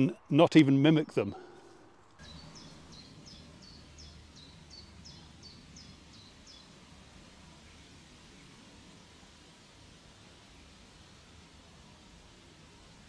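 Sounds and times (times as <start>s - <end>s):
faint low background noise: 0.0s - 13.0s
small bird singing: 2.2s - 6.9s.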